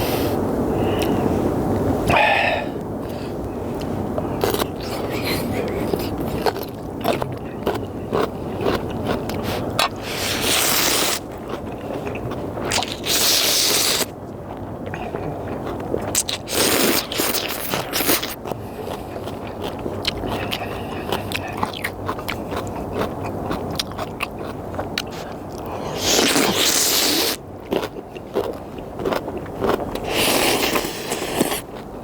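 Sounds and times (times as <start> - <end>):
person slurping noodles: 2.0 - 2.8, 9.3 - 11.2, 11.9 - 14.1, 16.1 - 19.3, 25.8 - 27.4, 30.0 - 31.6
chewing with small clicks: 3.8 - 10.6, 11.4 - 13.2, 14.0 - 27.0, 27.6 - 31.9.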